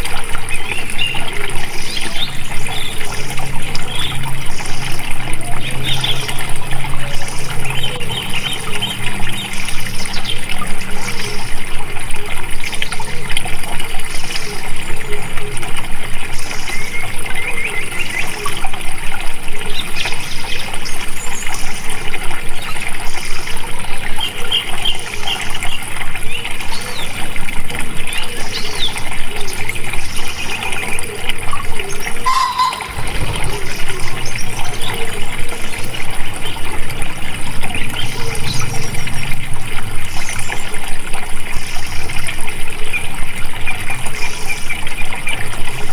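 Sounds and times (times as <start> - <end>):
small birds chirping: 0.0 - 11.8, 28.0 - 45.5
water trickling: 0.0 - 45.9.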